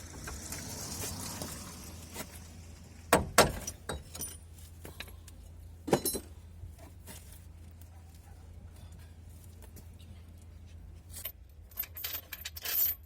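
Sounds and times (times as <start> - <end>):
metal tools clinking and knocking: 3.5 - 5.2, 5.8 - 6.4, 11.1 - 13.0.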